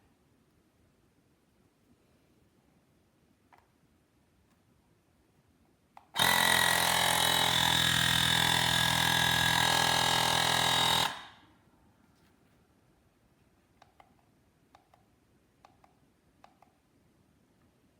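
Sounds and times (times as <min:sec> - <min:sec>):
tyre inflator compressor running: 0:06.2 - 0:11.3.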